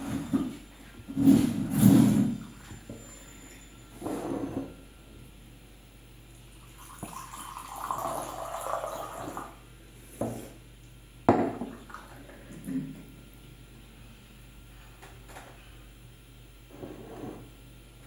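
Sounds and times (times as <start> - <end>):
water pouring: 6.6 - 9.5.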